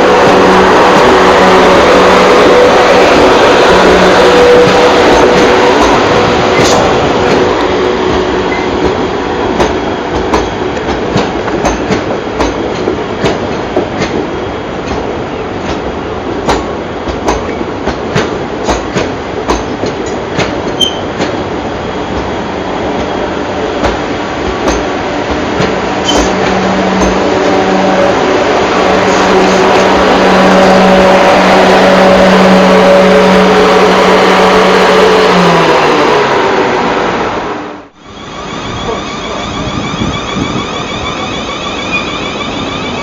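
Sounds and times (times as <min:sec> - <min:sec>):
train wheel noise: 0:00.0 - 0:43.0
high wheel squeaks: 0:20.7 - 0:21.2, 0:38.0 - 0:43.0.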